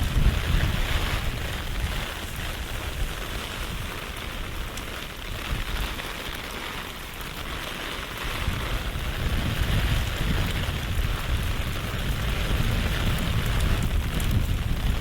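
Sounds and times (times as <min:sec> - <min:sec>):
rain falling on a street: 0:00.0 - 0:15.0
low rumble: 0:09.2 - 0:15.0.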